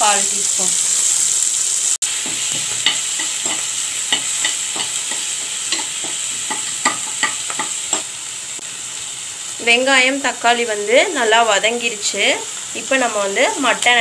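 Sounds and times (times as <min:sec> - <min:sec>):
vegetables sizzling in oil: 0:00.0 - 0:14.0
spoon scraping a pan: 0:02.2 - 0:08.1.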